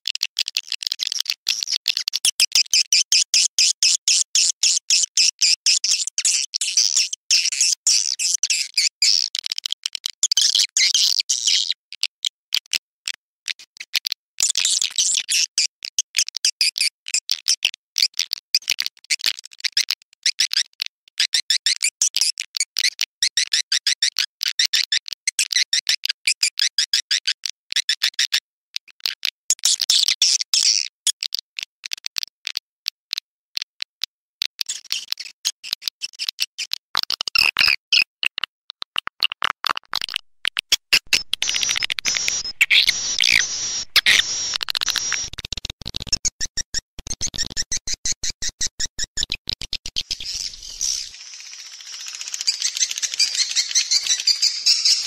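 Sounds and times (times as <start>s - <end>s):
swiftlets twittering chirps: 40.9s - 45.4s, 50.0s - 55.0s.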